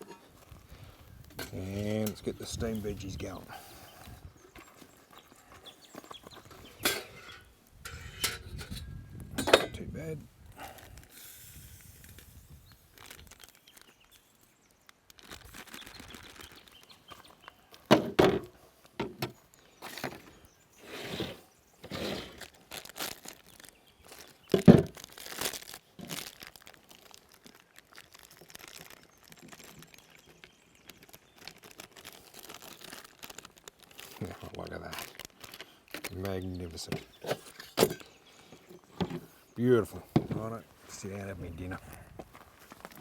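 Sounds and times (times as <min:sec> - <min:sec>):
pots and utensils scraping: 0:00.0 - 0:00.4, 0:06.3 - 0:09.8, 0:20.8 - 0:22.4, 0:37.0 - 0:38.2.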